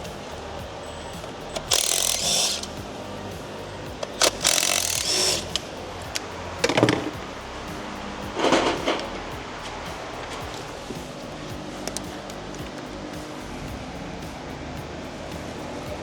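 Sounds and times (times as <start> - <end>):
power tool bursts: 0.0 - 7.2
background music: 0.0 - 16.0.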